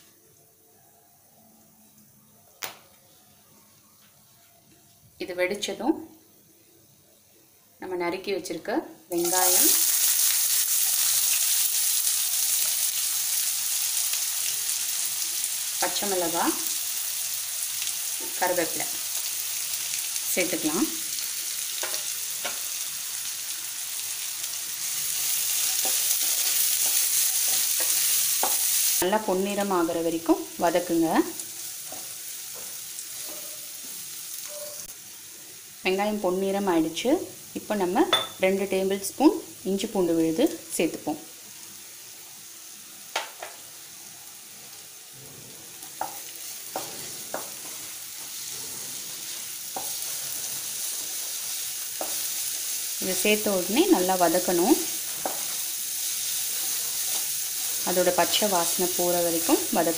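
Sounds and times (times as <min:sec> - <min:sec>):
vegetables sizzling in hot oil: 0:05.3 - 0:59.9
spatula stirring and knocking pan: 0:25.5 - 0:28.9, 0:45.8 - 0:52.4, 0:54.5 - 0:55.7.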